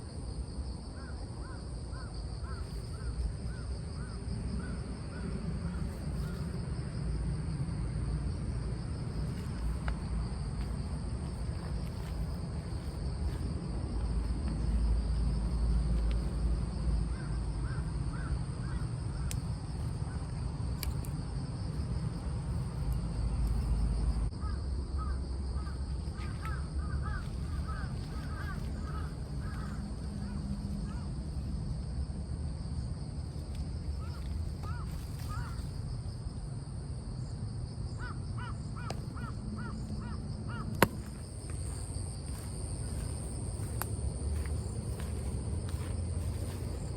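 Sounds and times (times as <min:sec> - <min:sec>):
high insect buzz: 0:08.8 - 0:36.2, 0:37.1 - 0:46.9
birds calling: 0:24.4 - 0:31.1.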